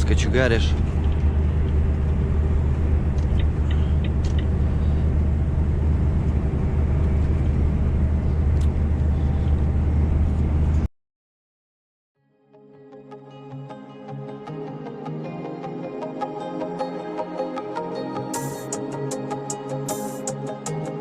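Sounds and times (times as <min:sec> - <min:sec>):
truck engine drone in cab: 0:00.0 - 0:10.9.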